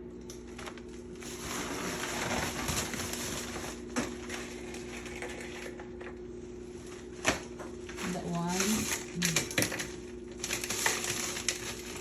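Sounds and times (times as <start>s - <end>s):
low steady hum: 0.0s - 12.0s
plastic bags rustling: 0.4s - 5.8s, 6.7s - 12.0s.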